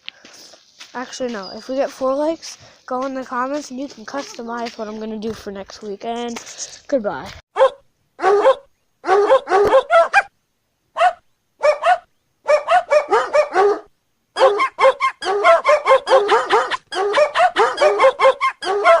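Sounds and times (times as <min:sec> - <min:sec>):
dog barking: 0:07.6 - 0:10.3, 0:11.0 - 0:19.0.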